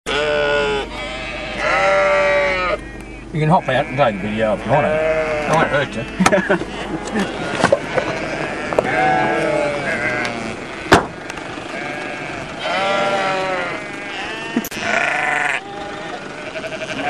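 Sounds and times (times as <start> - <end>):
sheep bleating: 0.1 - 17.0
sharp knock: 10.9 - 11.2.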